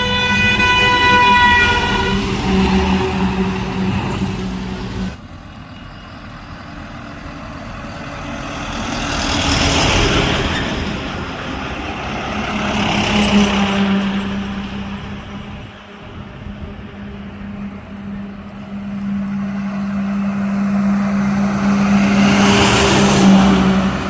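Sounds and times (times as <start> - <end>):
truck horn blaring: 0.0 - 5.2
heavy trucks passing: 0.0 - 24.0
steady low tone: 14.8 - 24.0.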